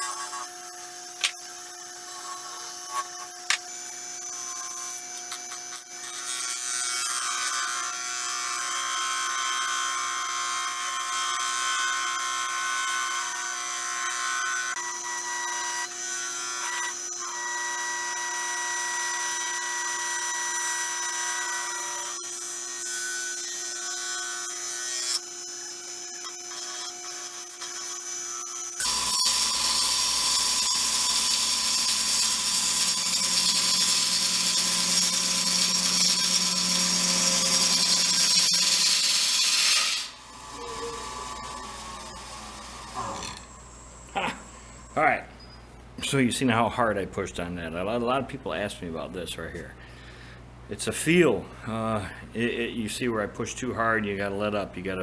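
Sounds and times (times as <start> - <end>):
wood lathe motor hum: 0.0 - 6.0, 7.2 - 45.0.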